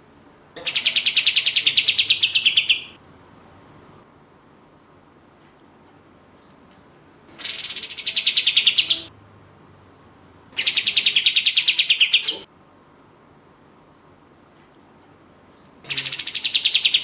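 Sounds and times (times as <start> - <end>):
songbird rattling trills: 0.6 - 2.9, 7.4 - 9.1.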